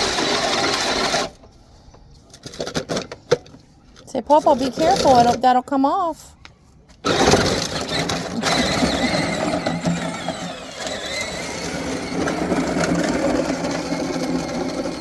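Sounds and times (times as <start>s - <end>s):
tractor motor running: 0.0s - 1.5s, 7.0s - 15.0s.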